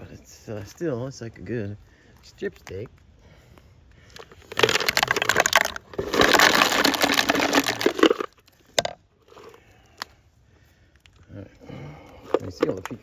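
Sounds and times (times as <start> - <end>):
pecans rattling and clattering: 4.2 - 9.6, 12.2 - 13.0.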